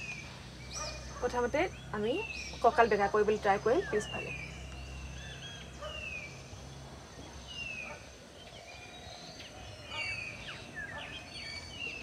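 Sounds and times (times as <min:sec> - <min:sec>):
faint outdoor background hiss: 0:00.0 - 0:12.0.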